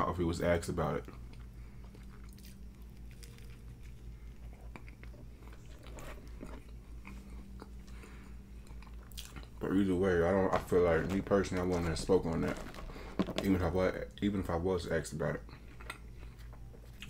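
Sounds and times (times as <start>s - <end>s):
faint low hum: 0.0s - 17.0s
close chewing: 1.0s - 9.6s.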